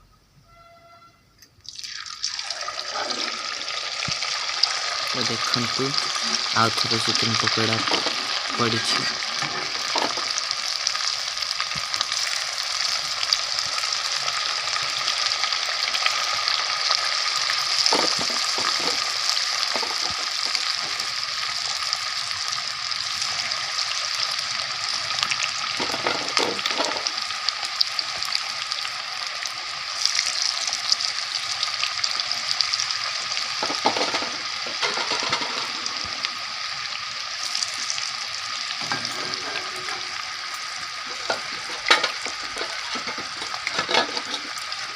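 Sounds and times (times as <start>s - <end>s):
food deep-frying in hot oil: 1.6s - 44.9s
utensil clinks and scrapes: 18.0s - 19.1s, 41.1s - 44.6s.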